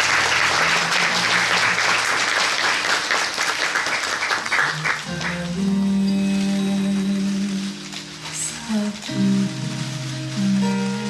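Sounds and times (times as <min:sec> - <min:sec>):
audience applauding: 0:00.0 - 0:05.7
soft background music: 0:05.0 - 0:11.0.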